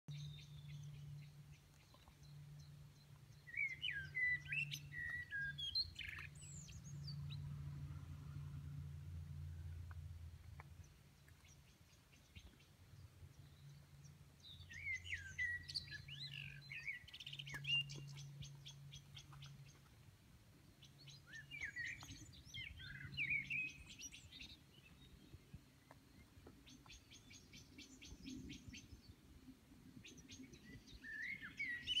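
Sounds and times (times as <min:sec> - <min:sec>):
songbird singing trills: 0:00.1 - 0:07.6, 0:09.6 - 0:19.9, 0:20.7 - 0:29.2, 0:30.0 - 0:32.0.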